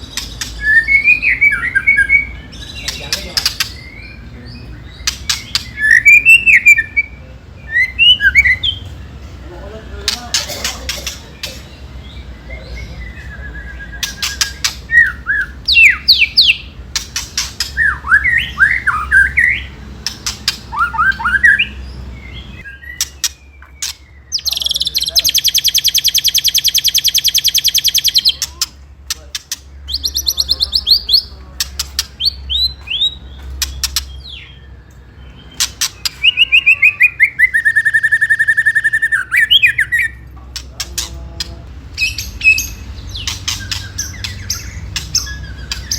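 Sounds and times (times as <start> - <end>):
bird singing whistled notes: 0.0 - 8.9, 12.0 - 16.7, 17.6 - 28.4, 32.2 - 40.2, 42.0 - 45.9
bird rattling trill: 15.7 - 18.0, 23.0 - 28.5.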